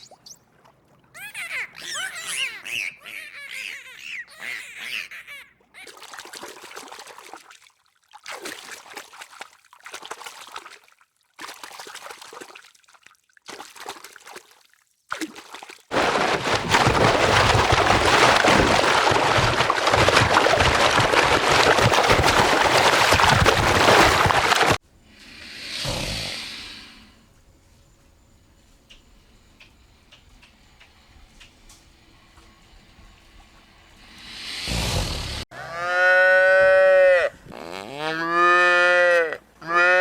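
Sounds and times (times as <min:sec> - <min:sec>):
rush of running water: 0:15.9 - 0:24.8.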